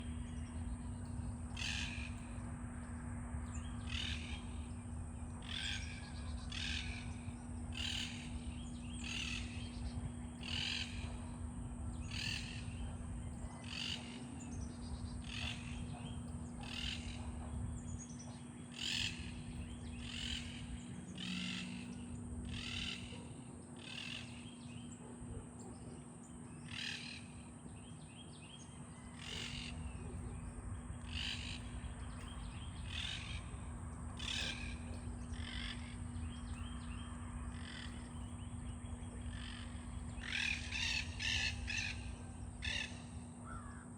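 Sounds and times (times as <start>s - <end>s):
low steady hum: 0.0s - 43.9s
parakeets squawking: 39.1s - 43.8s.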